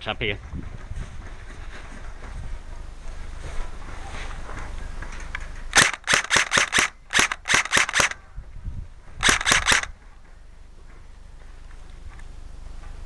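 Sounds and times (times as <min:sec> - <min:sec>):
airsoft gun shots: 0:05.7 - 0:08.2, 0:09.2 - 0:09.9.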